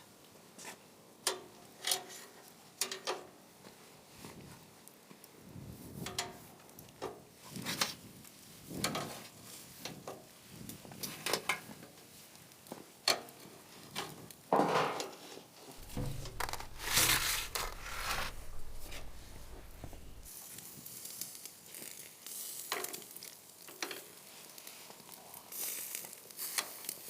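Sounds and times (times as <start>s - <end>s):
kitchenware clinking and scraping: 15.8s - 20.3s
low steady hum: 15.8s - 20.3s.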